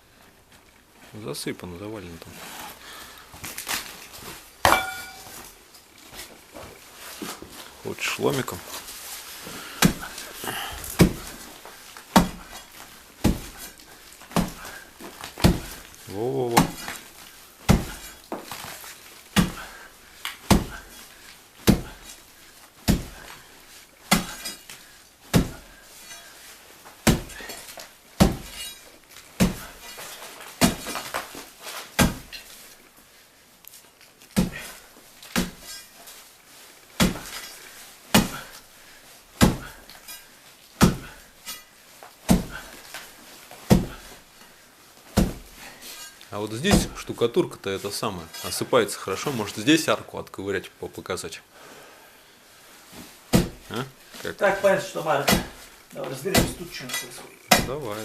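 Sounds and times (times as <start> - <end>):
crowbar striking brick wall: 4.6 - 5.4, 9.8 - 10.2, 10.9 - 11.4, 12.1 - 15.9, 16.5 - 17.0, 17.6 - 18.6, 19.4 - 19.8, 20.4 - 21.0, 21.6 - 22.0, 22.8 - 23.4, 24.0 - 26.3, 27.0 - 31.3, 32.0 - 32.5, 34.4 - 35.9, 37.0 - 38.6, 39.4 - 40.1, 40.8 - 41.7, 42.3 - 42.8, 43.7 - 44.2, 45.1 - 47.1, 53.3 - 53.7, 55.2 - 55.7, 56.3 - 57.8
plaster and brick falling: 4.6 - 5.5, 14.2 - 15.9, 27.0 - 31.4, 37.0 - 38.5, 39.4 - 40.1, 42.3 - 44.1.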